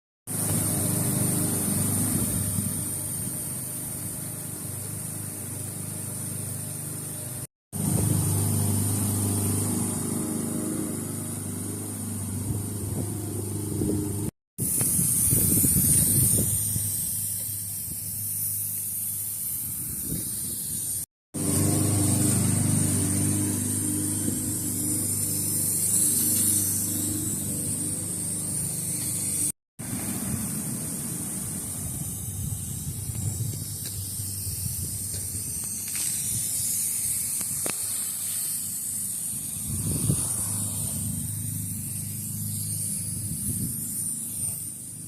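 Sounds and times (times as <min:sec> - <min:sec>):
sprinklers hissing: 0:00.3 - 0:45.0
wind rumbling on microphone: 0:12.4 - 0:17.1, 0:31.8 - 0:36.6, 0:39.6 - 0:41.2.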